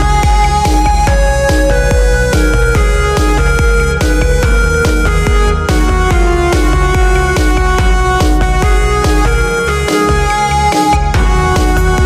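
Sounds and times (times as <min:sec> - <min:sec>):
deep bass: 0:00.0 - 0:12.0
held synth notes: 0:00.0 - 0:12.0
drum beat: 0:11.2 - 0:12.0.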